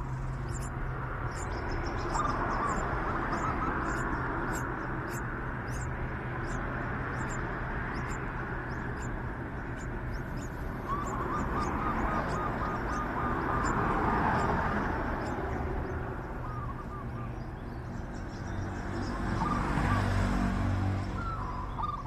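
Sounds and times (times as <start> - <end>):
bird calling rapid notes: 0.4 - 17.4.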